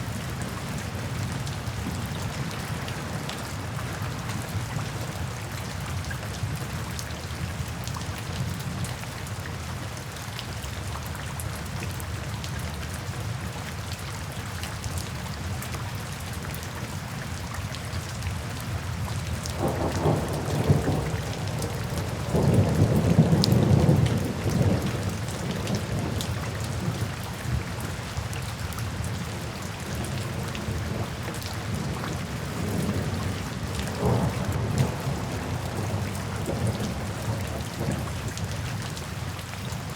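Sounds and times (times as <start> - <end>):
rain falling into puddles: 0.0 - 39.9
thunder rumbling: 19.6 - 26.2, 33.9 - 38.4.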